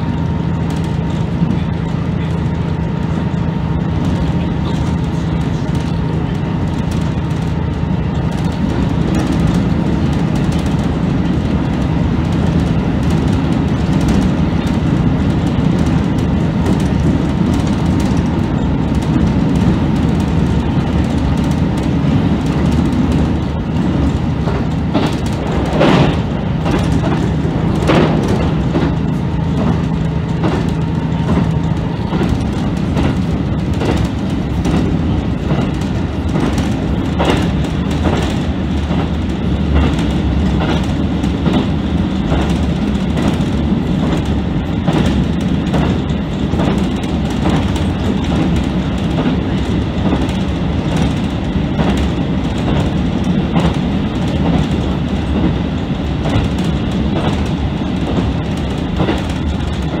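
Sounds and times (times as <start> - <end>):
low engine drone: 0.0 - 60.0
wheels clickety-clack over rail joints: 0.0 - 60.0.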